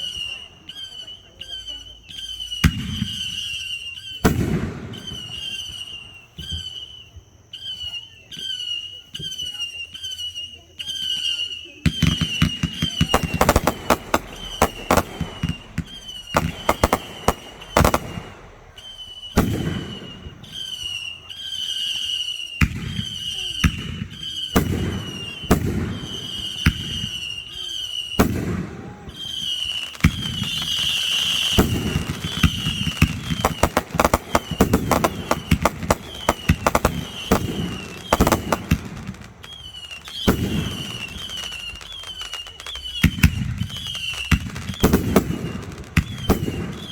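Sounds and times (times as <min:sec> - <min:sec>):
fireworks bangs and crackling: 0:00.0 - 0:46.9
high chirp: 0:12.0 - 0:28.2.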